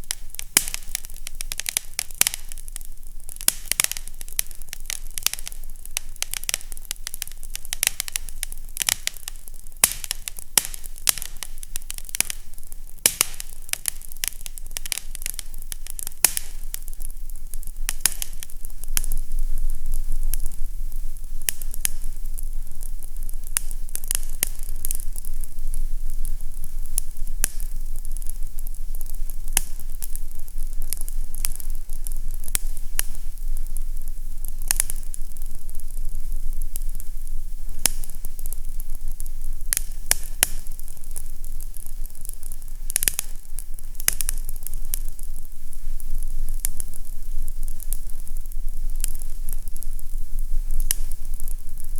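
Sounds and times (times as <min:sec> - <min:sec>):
fireplace crackling and popping: 0:00.0 - 0:51.9.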